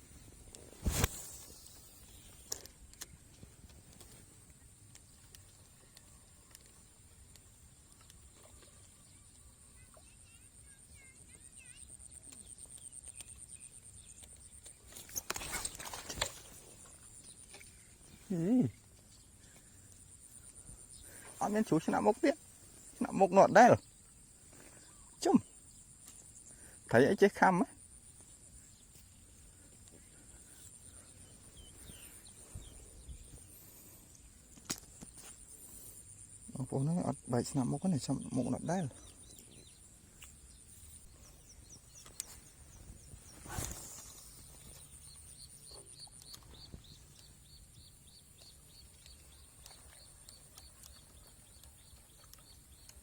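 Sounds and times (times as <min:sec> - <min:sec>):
faint bird chirps: 0:00.0 - 0:53.0
insects trilling: 0:04.7 - 0:53.0
bird chirps: 0:36.1 - 0:53.0.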